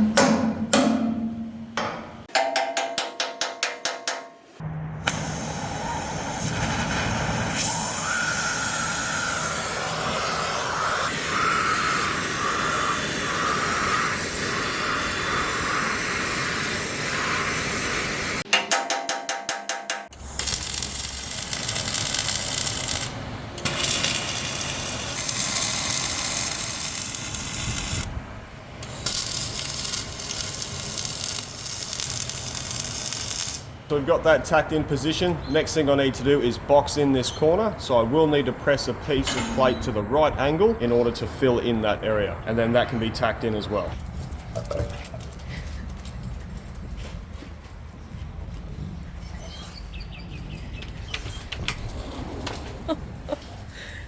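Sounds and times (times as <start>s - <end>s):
arc welding crackling hiss: 5.1s - 18.4s, 20.2s - 28.1s, 28.8s - 33.8s.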